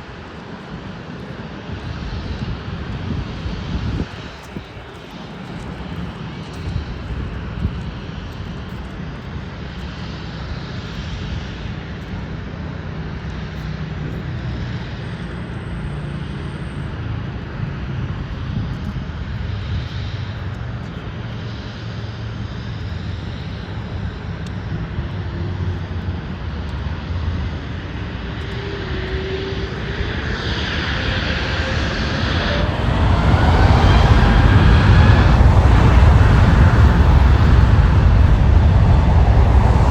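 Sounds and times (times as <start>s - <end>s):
jet engines rumbling: 0.0s - 15.0s, 16.9s - 39.9s
rising engine whine: 13.3s - 39.9s.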